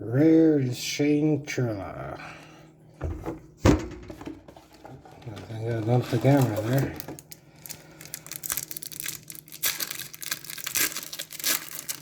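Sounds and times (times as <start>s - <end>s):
wrapper tearing and crinkling: 5.3s - 12.0s.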